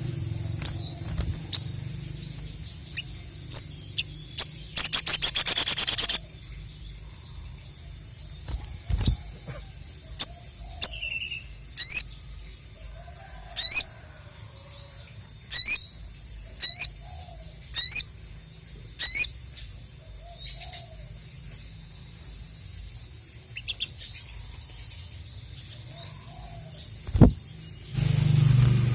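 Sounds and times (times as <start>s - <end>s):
bird high chatter: 0.0s - 6.3s, 8.3s - 12.0s
soft bird twittering: 0.0s - 28.8s.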